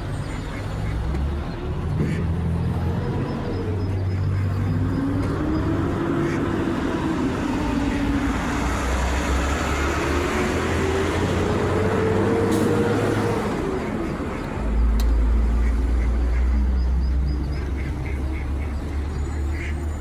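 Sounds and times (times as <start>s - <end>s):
vehicles passing: 0.0s - 20.0s
engine note rising and falling: 4.5s - 13.8s.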